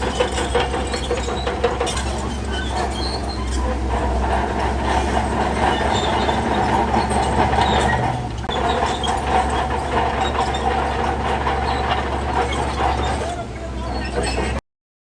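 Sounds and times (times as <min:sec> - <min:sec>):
bulldozer diesel engine running: 0:00.0 - 0:14.6
steel tracks clanking: 0:00.0 - 0:14.6.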